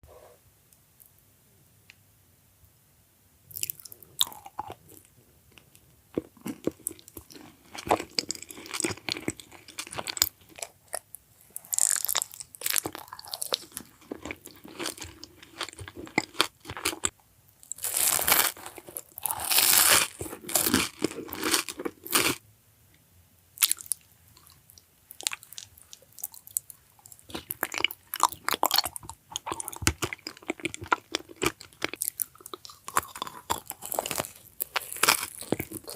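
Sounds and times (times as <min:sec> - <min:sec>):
crunchy food chewing: 0:03.5 - 0:22.4, 0:23.6 - 0:35.9.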